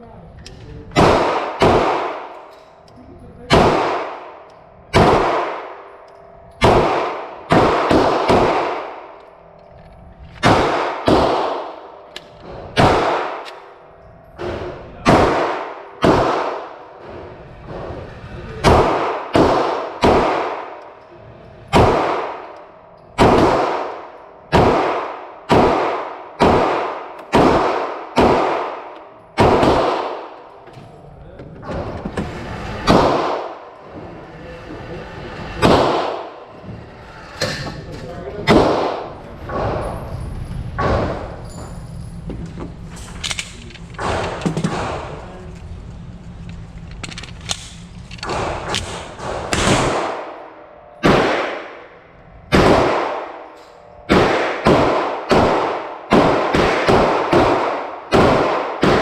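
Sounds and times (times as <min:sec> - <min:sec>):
pistol shots with echo: 0:00.9 - 0:02.5, 0:03.5 - 0:09.2, 0:10.4 - 0:13.6, 0:14.4 - 0:17.0, 0:18.6 - 0:21.0, 0:21.7 - 0:22.6, 0:23.2 - 0:30.5, 0:32.8 - 0:33.7, 0:35.6 - 0:36.4, 0:38.4 - 0:39.9, 0:48.2 - 0:59.0.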